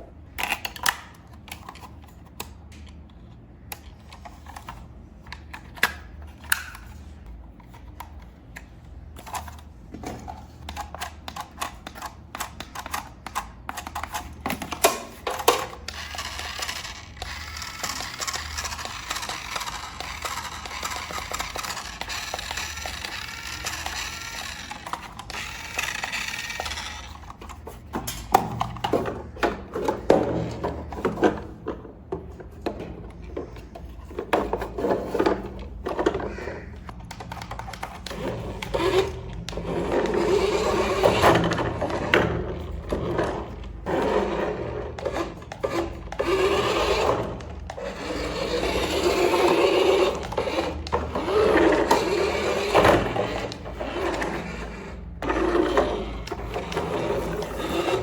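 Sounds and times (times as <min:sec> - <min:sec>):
plastic toy parts clicking: 0:00.4 - 0:07.0, 0:10.6 - 0:28.9, 0:36.8 - 0:39.5
steady rustle or whir: 0:13.7 - 0:29.1, 0:36.9 - 0:58.0.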